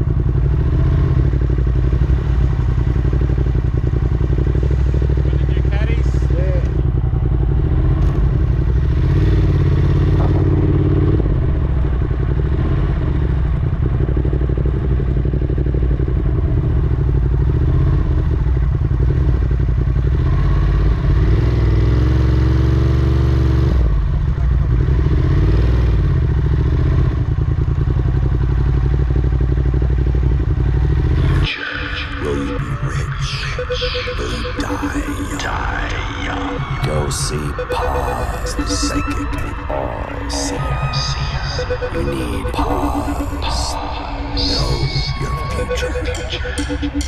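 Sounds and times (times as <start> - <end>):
motorcycle engine running: 0.0 - 32.2.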